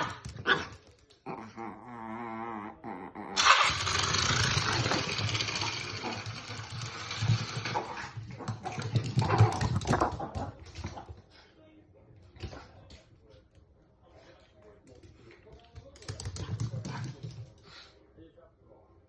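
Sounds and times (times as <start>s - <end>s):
dog growling: 1.2s - 11.1s.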